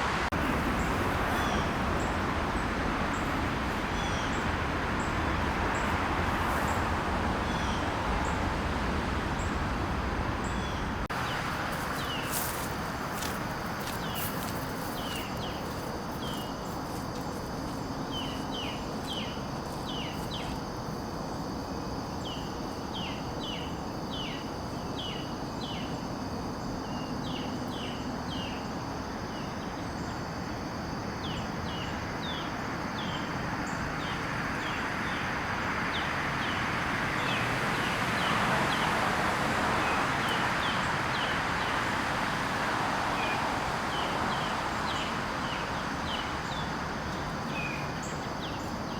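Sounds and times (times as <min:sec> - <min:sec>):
broad rushing noise: 0:00.0 - 0:20.8
insect hum: 0:00.0 - 0:48.9
small birds chirping: 0:10.4 - 0:17.5.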